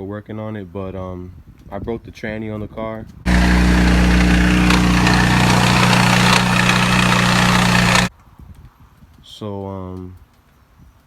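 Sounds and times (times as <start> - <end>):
engine idling loudly: 3.3 - 8.1.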